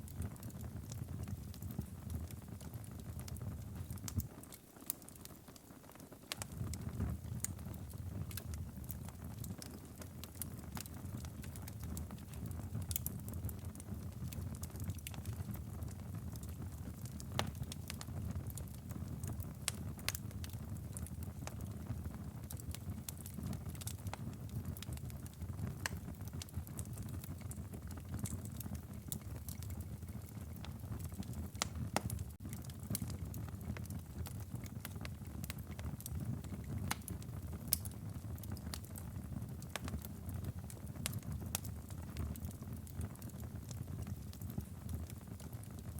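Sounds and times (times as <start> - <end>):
firewood crackling and popping: 0.0 - 45.9
fire flames rumbling: 6.4 - 45.9.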